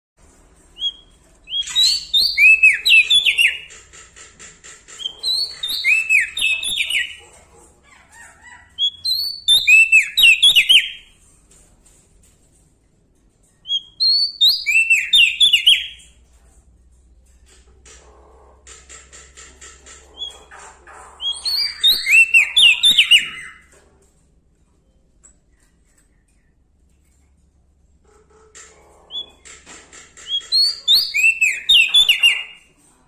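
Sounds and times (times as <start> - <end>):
bird singing whistled notes: 0.8 - 3.7, 5.0 - 7.2, 13.7 - 16.0, 21.4 - 23.6, 30.3 - 32.6.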